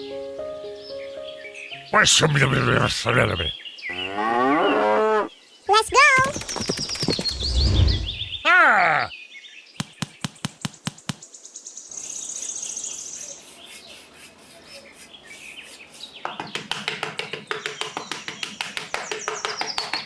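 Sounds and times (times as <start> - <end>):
birds chirping: 0.8 - 20.0
high bird trill: 11.9 - 16.6.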